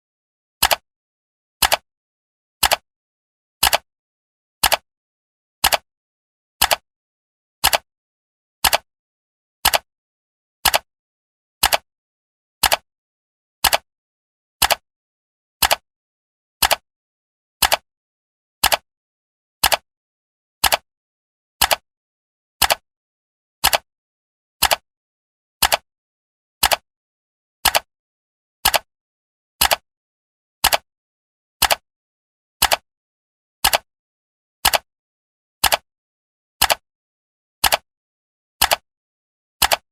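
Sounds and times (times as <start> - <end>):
clock ticking: 0.6 - 0.8, 3.6 - 3.8, 7.6 - 7.8, 12.6 - 12.8, 14.6 - 14.8, 15.6 - 15.8, 16.6 - 16.8, 17.6 - 17.8, 18.6 - 18.8, 19.6 - 19.8, 20.6 - 20.8, 23.6 - 23.8, 25.6 - 25.8, 27.6 - 27.9, 28.6 - 28.9, 30.6 - 30.8, 31.6 - 31.8, 32.6 - 32.8, 33.6 - 33.9, 34.6 - 34.9, 35.6 - 35.8, 36.6 - 36.8, 37.6 - 37.8, 38.6 - 38.8, 39.6 - 39.8.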